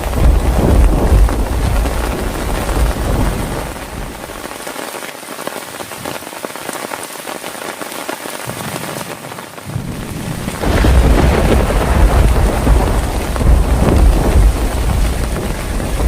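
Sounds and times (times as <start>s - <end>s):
thunder rumble: 0.0s - 4.5s, 9.7s - 16.0s
heavy rain: 0.0s - 16.0s.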